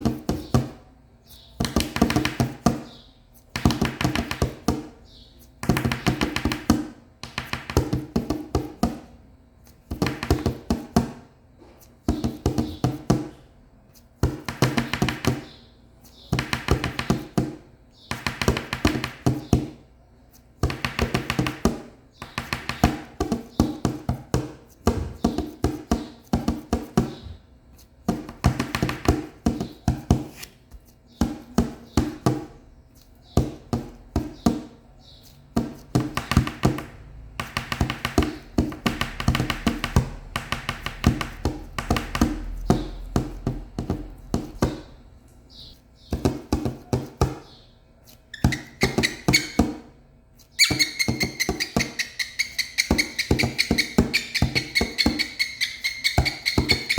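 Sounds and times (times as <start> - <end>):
cockatiel tapping: 1.4 - 5.0, 5.6 - 9.0, 9.9 - 11.2, 14.2 - 15.6, 16.2 - 19.8, 20.6 - 27.4, 28.1 - 30.3, 33.3 - 44.9, 45.6 - 49.9, 50.6 - 56.9.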